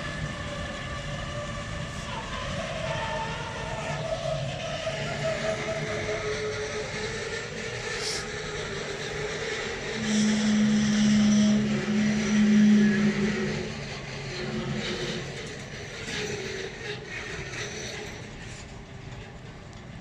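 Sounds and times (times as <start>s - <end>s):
electric locomotive humming: 0.0s - 20.0s
train wagons rattling past: 0.0s - 20.0s.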